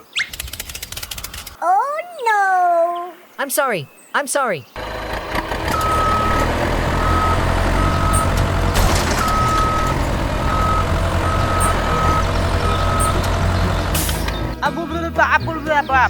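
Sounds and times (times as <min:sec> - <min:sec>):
vehicle engine rumbling: 0:04.8 - 0:14.6
high electronic beeps: 0:07.0 - 0:13.3.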